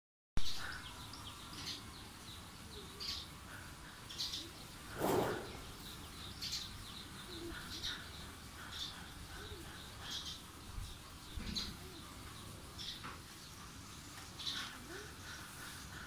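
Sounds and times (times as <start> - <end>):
small birds chirping: 0.4 - 16.0
brief burst of noise: 4.9 - 5.9.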